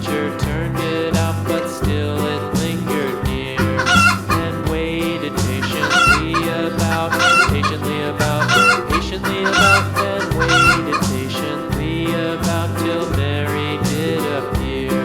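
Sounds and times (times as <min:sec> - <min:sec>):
chicken clucking and crowing: 0:03.6 - 0:04.6, 0:05.5 - 0:11.2.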